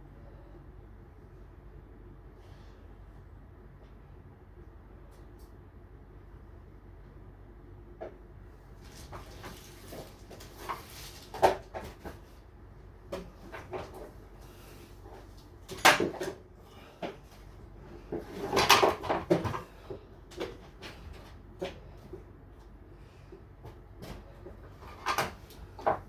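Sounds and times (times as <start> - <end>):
refrigerator rattling scrape: 8.8 - 12.4.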